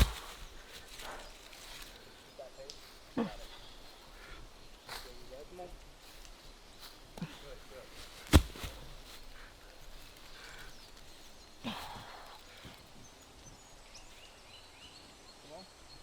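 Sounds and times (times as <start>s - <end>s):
heavy object thudding on ground: 0.0s - 0.5s, 8.0s - 9.5s
faint bird chirps: 0.0s - 16.0s
breathy burst: 11.6s - 12.8s.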